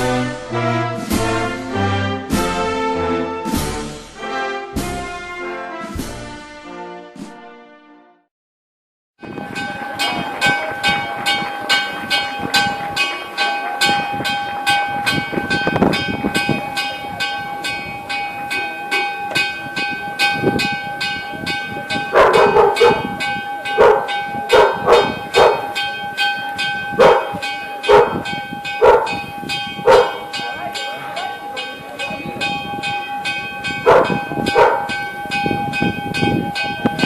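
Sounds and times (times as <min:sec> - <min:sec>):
church bell ringing fast: 0:09.2 - 0:37.0
dog barking: 0:22.1 - 0:23.1, 0:23.8 - 0:25.8, 0:27.0 - 0:28.2, 0:28.8 - 0:29.2, 0:29.8 - 0:30.3, 0:33.8 - 0:34.9.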